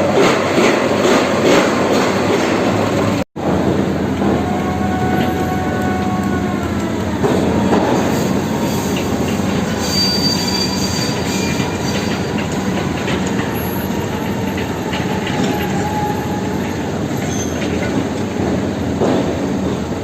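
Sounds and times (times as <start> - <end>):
heavy diesel machinery running: 0.0 - 20.0
metallic squeals: 7.9 - 17.8.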